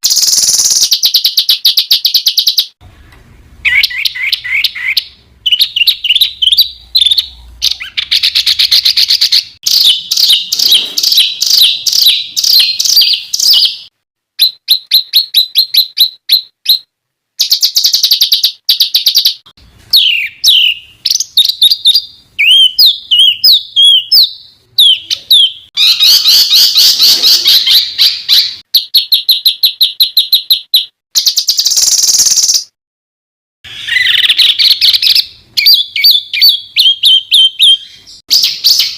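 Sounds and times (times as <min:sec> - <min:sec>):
songbird song: 0:00.0 - 0:02.8, 0:03.6 - 0:32.8, 0:33.7 - 0:38.9.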